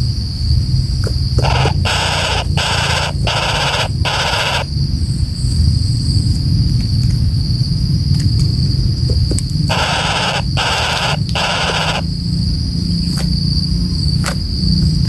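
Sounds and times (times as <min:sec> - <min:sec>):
high insect-like whine: 0:00.0 - 0:15.0
bird giving raspy calls: 0:01.0 - 0:04.8, 0:08.9 - 0:13.3.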